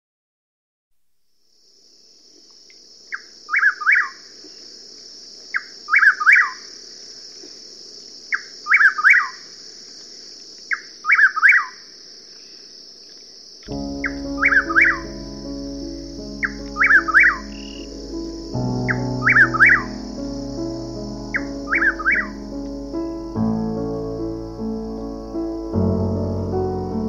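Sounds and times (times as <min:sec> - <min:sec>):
steady high hiss: 0:01.0 - 0:27.0
bird chirping: 0:03.1 - 0:04.6, 0:05.5 - 0:06.7, 0:08.3 - 0:09.4, 0:10.7 - 0:11.8, 0:13.6 - 0:27.0.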